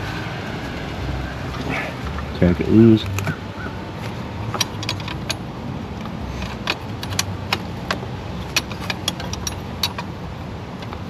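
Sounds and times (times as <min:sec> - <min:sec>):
steady low rumble: 0:00.0 - 0:11.0
metal wrench clicking on nut: 0:04.5 - 0:05.4, 0:06.3 - 0:10.1.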